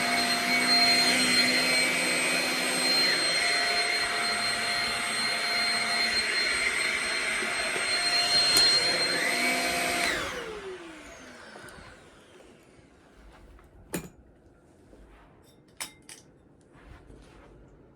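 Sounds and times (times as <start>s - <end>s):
vacuum cleaner whining: 0.0s - 13.4s.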